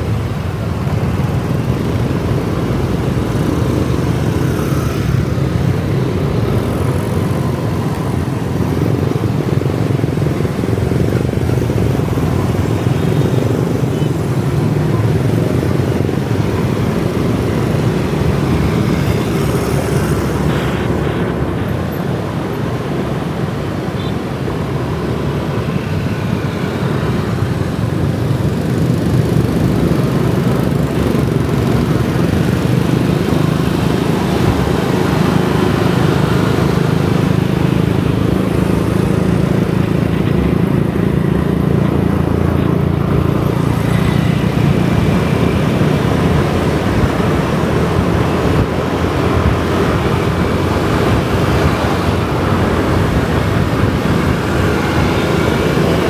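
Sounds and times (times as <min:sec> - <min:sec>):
street traffic hiss: 0:00.0 - 0:56.0
motorcycle engine running: 0:26.8 - 0:56.0.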